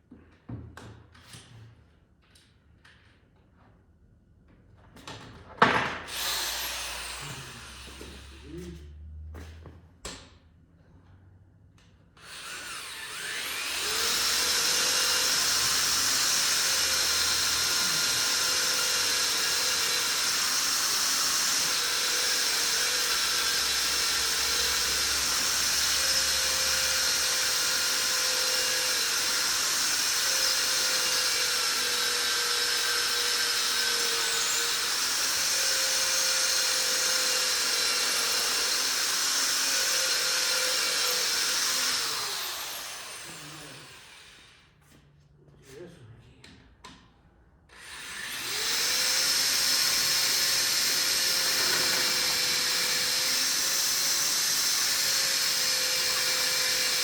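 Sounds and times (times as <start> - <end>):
electric drill whining: 6.1 - 8.7, 12.2 - 44.6, 47.7 - 57.0.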